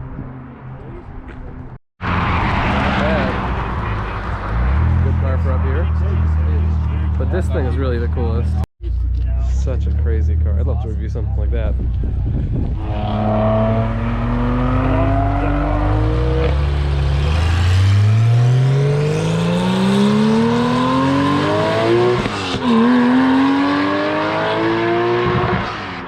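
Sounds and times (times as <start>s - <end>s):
car engine accelerating hard: 11.9s - 26.0s.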